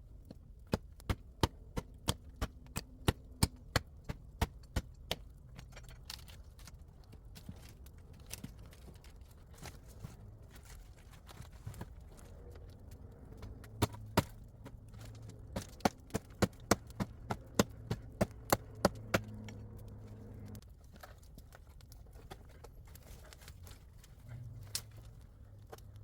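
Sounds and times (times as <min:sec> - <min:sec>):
wood being chopped: 0:00.3 - 0:05.7, 0:13.4 - 0:19.9.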